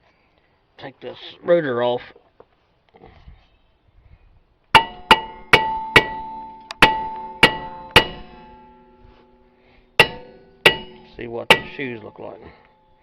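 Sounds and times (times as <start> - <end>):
hammer striking metal rotor: 4.8 - 13.0
rotor ringing metallic tone: 4.8 - 13.0.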